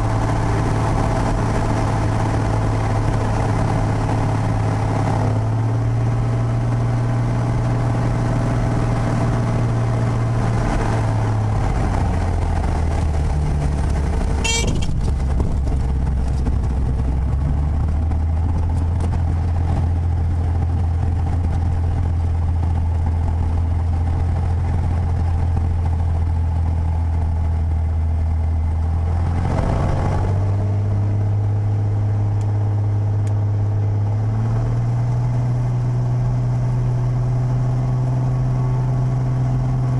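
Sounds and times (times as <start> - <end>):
aircraft piston engine running: 6.8 - 26.1.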